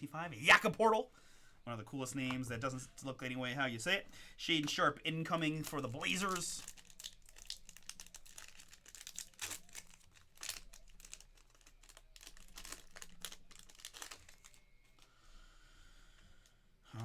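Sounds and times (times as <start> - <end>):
wrapper crinkling: 5.5 - 15.1.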